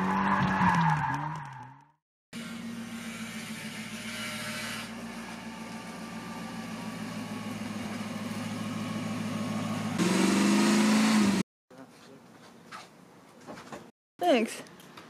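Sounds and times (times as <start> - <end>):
car engine revving: 9.5 - 11.4.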